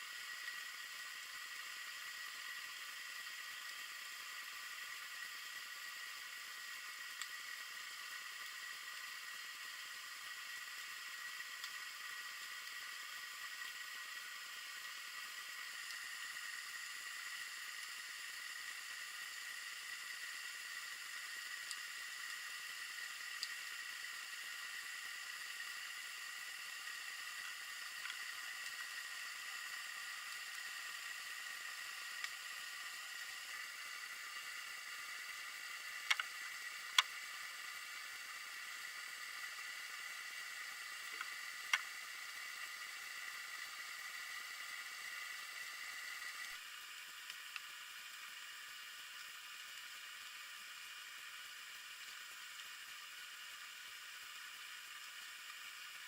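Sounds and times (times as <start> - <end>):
steady hiss with high whine: 0.0 - 56.0.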